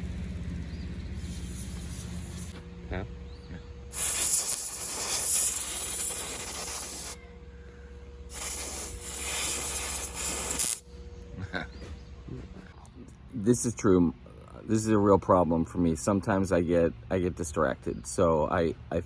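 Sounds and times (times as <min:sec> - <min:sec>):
harsh hissing rubbing noise: 0:01.2 - 0:02.6, 0:03.9 - 0:07.2, 0:08.3 - 0:10.8.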